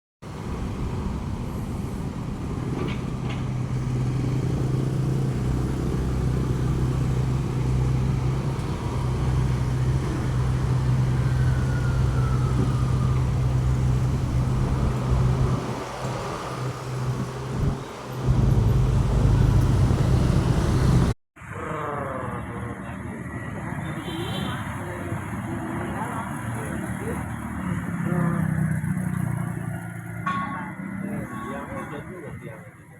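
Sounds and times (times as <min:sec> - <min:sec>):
vehicle engine humming: 0:00.3 - 0:21.2.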